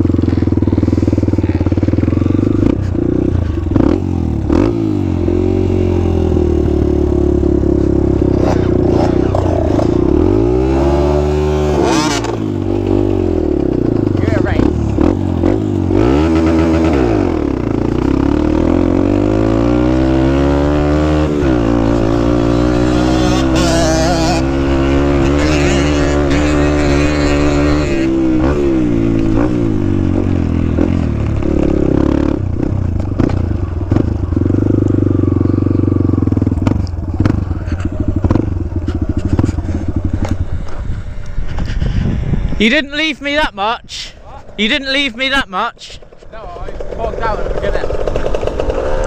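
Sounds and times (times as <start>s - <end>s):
dirt bike engine revving: 0.0s - 49.0s.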